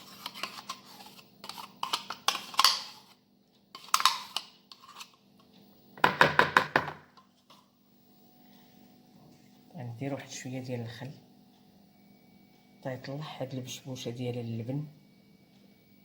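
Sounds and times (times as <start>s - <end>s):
utensils knocking against mixing bowl: 6.0s - 7.2s.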